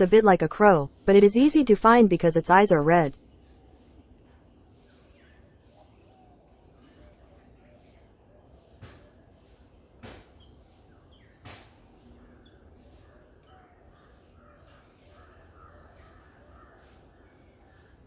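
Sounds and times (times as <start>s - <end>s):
birds chirping: 0.0s - 8.6s
insect drone: 0.0s - 13.0s.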